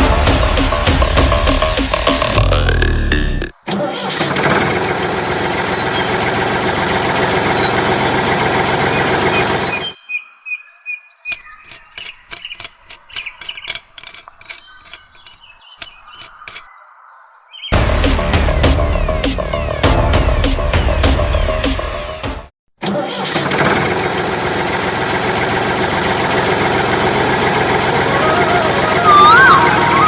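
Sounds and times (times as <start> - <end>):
irregular clicks: 11.3 - 16.7
small electric motor whining: 11.3 - 16.7.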